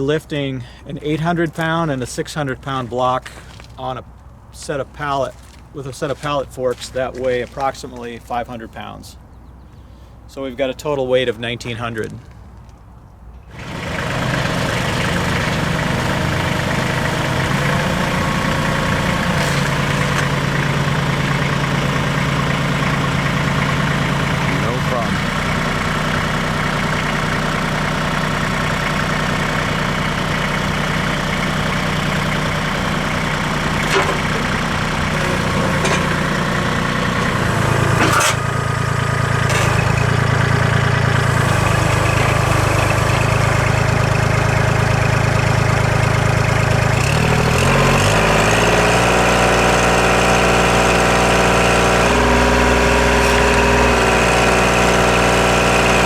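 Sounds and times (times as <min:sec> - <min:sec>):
tractor diesel engine running: 0:13.4 - 0:56.0.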